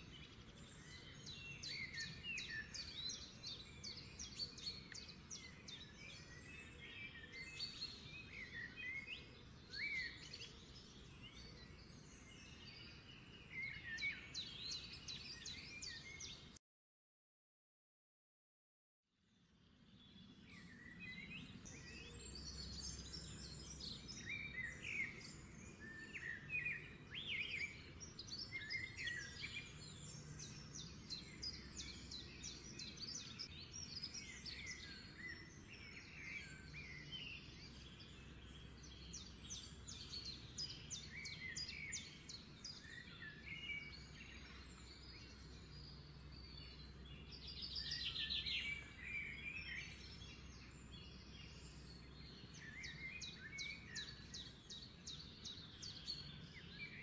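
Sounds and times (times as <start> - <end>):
small birds chirping: 0.0 - 16.6, 19.4 - 57.0.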